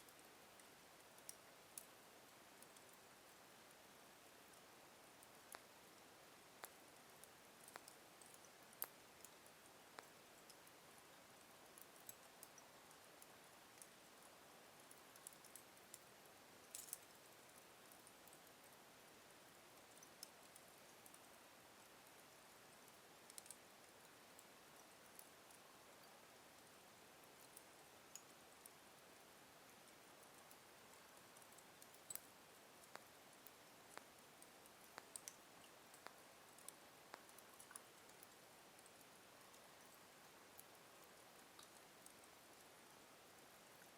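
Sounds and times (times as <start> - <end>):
soft fire hiss: 0.0 - 43.9
wood fire crackling: 5.3 - 10.8, 30.1 - 42.6.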